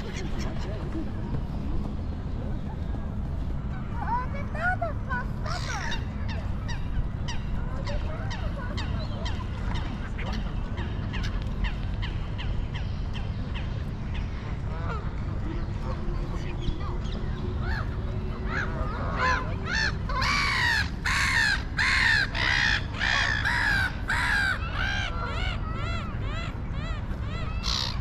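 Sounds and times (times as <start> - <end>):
bird harsh calls: 16.6 - 28.0.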